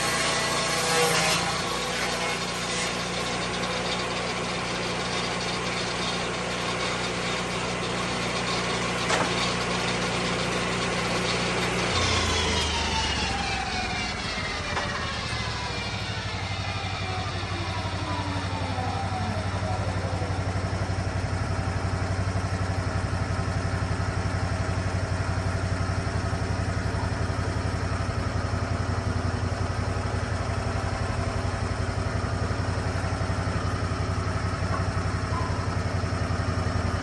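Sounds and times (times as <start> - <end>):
saw blade whine spinning down: 0.0 - 37.0
sawmill engine running: 0.0 - 37.0.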